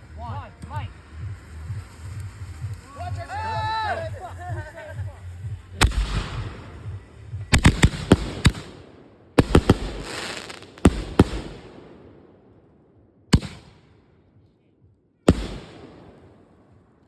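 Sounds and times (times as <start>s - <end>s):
firework crackling hiss: 0.9s - 8.8s, 9.4s - 11.7s
firework bangs: 5.7s - 12.4s, 13.3s - 13.9s, 15.3s - 16.7s.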